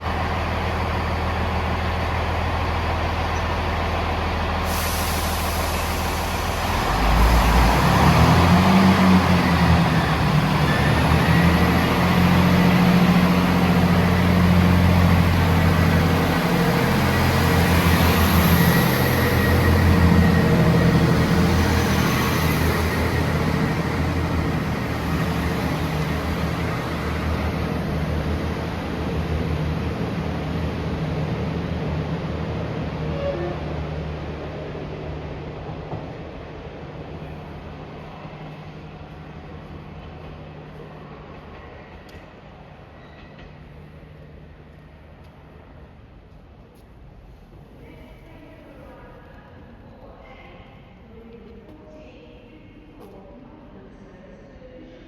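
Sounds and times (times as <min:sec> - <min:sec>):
diesel train engine running: 0:00.0 - 0:33.0
high hiss: 0:04.6 - 0:06.9.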